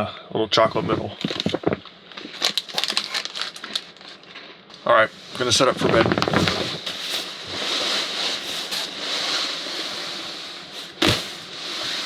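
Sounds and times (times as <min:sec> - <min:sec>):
sleeping bag rustling: 0:05.2 - 0:12.0.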